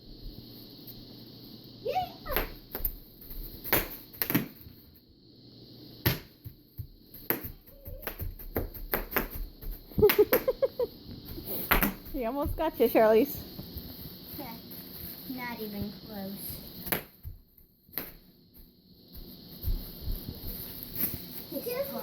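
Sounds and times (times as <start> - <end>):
bubble wrap popping: 2.3 - 4.6, 7.2 - 10.6, 19.7 - 21.7
laughter-like voice: 10.0 - 11.0.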